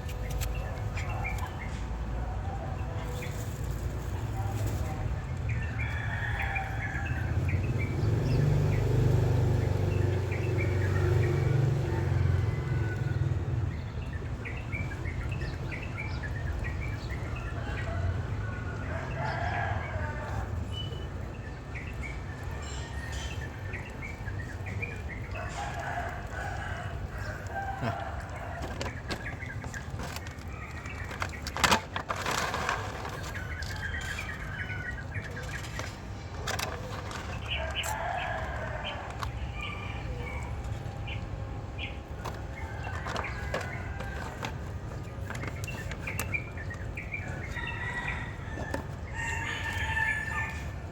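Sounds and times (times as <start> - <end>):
rooster crowing: 25.4 - 28.6, 47.3 - 50.9
chickens clucking: 25.4 - 31.4.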